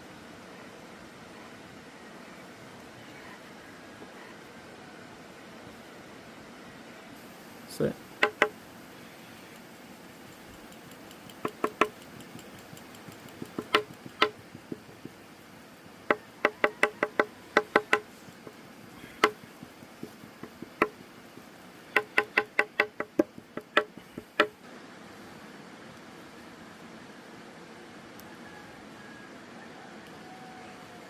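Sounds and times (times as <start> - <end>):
knife chopping on wooden board: 8.2 - 8.5, 10.8 - 15.2, 16.1 - 24.6.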